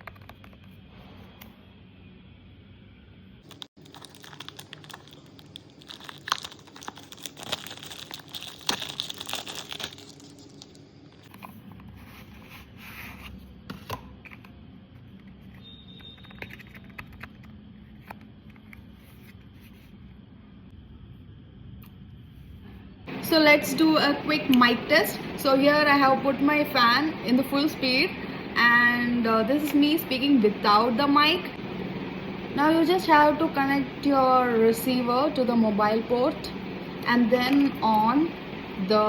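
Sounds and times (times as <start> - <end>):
plastic and paper wrapping crinkling: 3.4 - 11.3.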